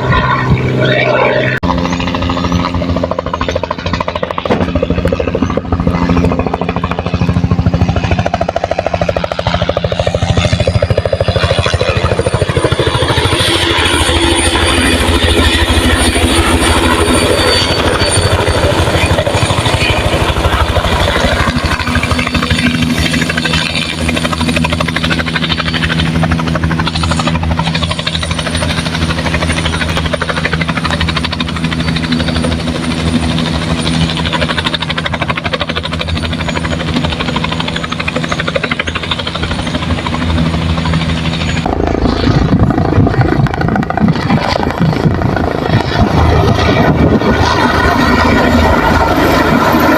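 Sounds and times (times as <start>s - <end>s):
helicopter rotor chopping: 0.0s - 49.9s
rough low rumble: 40.0s - 49.8s.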